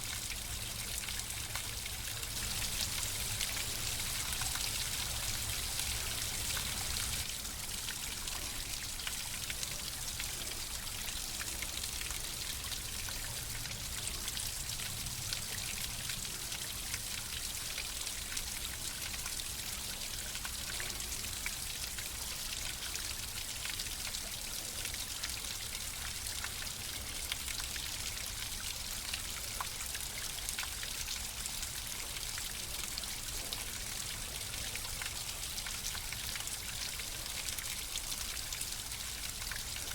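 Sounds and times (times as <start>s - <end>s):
flowing water: 0.0s - 39.9s
water splashes and drips: 0.0s - 39.9s.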